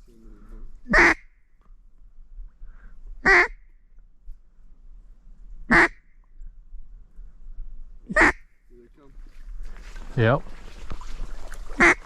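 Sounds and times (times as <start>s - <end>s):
duck quacking: 0.9s - 1.2s, 3.2s - 3.6s, 5.7s - 6.0s, 8.1s - 8.4s, 11.8s - 12.0s.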